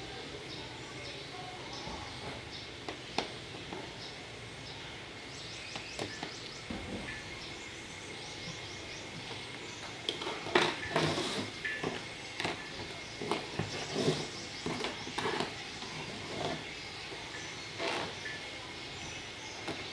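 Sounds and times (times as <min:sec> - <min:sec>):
background noise: 0:00.0 - 0:19.9
knocks and handling sounds: 0:08.4 - 0:16.7.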